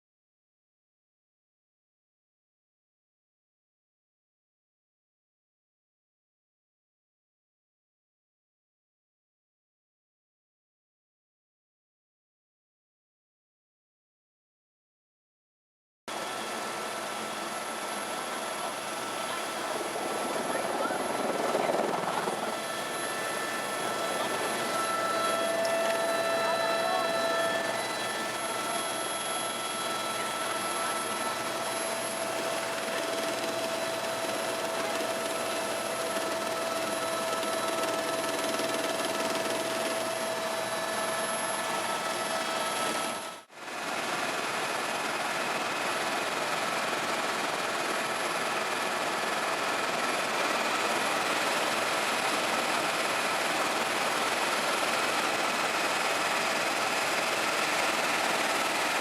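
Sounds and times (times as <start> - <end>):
helicopter rushing noise: 16.1 - 59.0
thin whining tones: 17.1 - 43.4.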